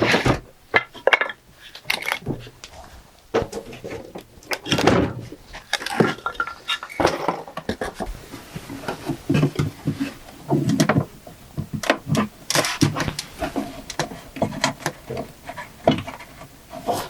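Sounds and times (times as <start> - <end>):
dull thuds: 0.0 - 0.9, 3.3 - 6.2
hard objects knocking and rattling: 0.0 - 17.0.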